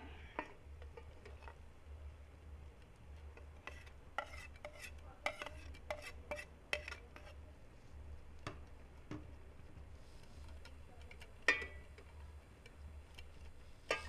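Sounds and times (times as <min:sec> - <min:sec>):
metal spoon scraping a pot: 0:03.4 - 0:07.4, 0:13.0 - 0:14.0.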